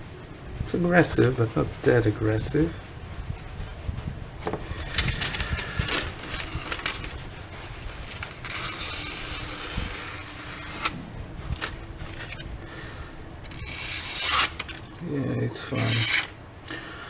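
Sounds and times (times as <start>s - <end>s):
knife scraping on sandpaper: 13.5s - 15.0s, 15.6s - 16.4s.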